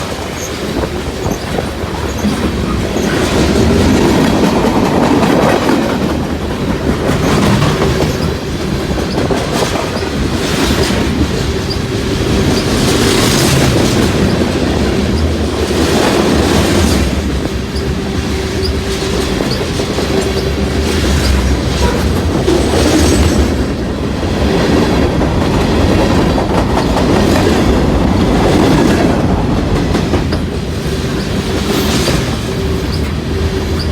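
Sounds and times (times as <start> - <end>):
train wheel squeal: 0.0 - 4.1, 7.1 - 15.4, 16.6 - 23.8, 30.3 - 33.9
train wheels clacking on rail joints: 0.0 - 33.9.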